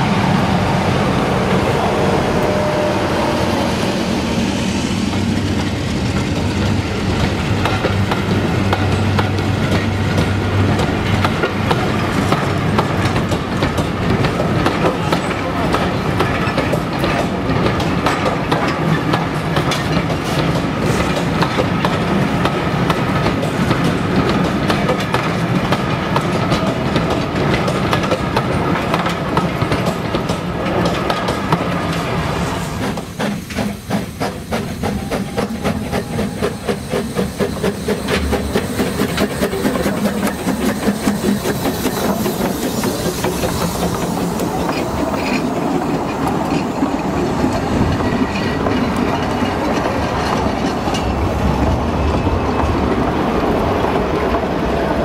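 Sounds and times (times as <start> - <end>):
passing train rumble: 0.0 - 55.0
wheels clattering over rail joints: 37.3 - 53.0.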